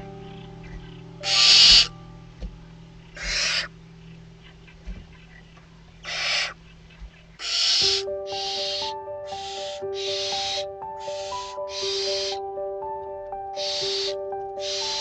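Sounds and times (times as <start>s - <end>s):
owl nestlings hissing: 0.6s - 1.9s, 3.0s - 3.7s, 6.0s - 12.4s, 13.6s - 15.0s.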